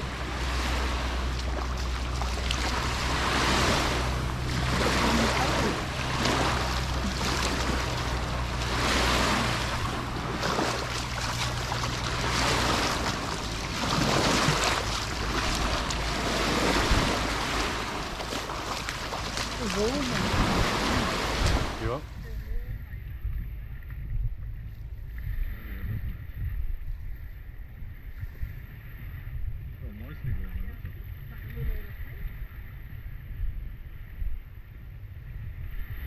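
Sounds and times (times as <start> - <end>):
sea waves washing onto beach: 0.0 - 22.7
low steady hum: 0.0 - 36.0.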